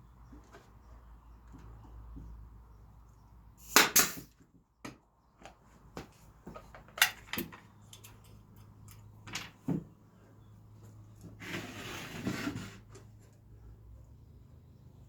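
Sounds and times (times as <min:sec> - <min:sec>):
wood scraping: 0:11.3 - 0:13.3.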